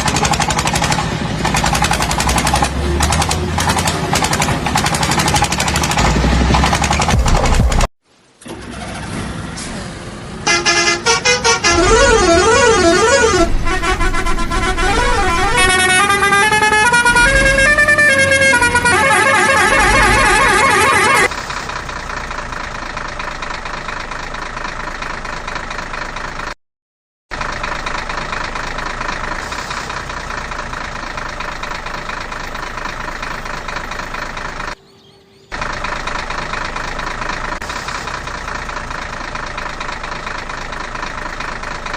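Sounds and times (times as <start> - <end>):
toy warbling siren: 11.4 - 13.5, 14.8 - 21.3.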